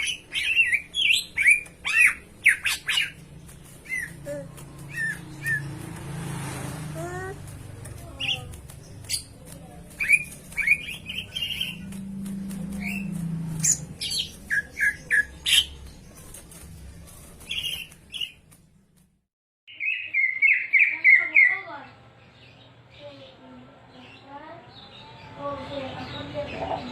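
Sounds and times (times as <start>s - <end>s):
bird chirping and whistling: 0.0s - 3.2s, 4.8s - 5.8s, 12.8s - 15.7s.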